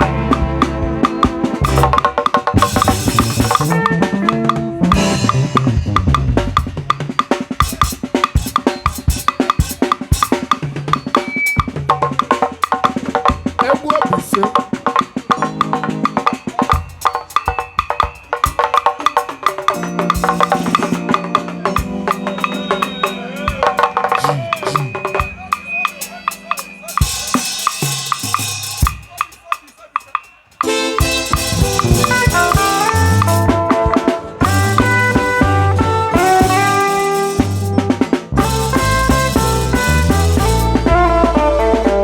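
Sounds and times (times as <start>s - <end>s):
live band instrumental music: 0.0s - 42.0s
cowbell-like click: 6.9s - 33.4s.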